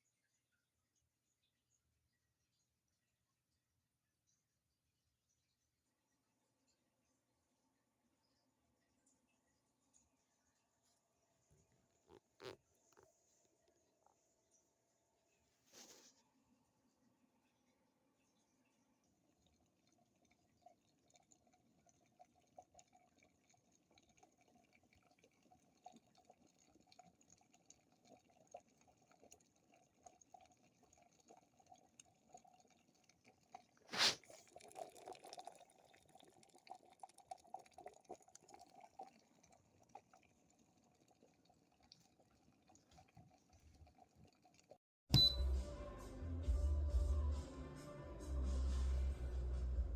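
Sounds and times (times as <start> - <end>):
electric kettle heating water: 19.2 - 45.6
music: 45.2 - 49.9.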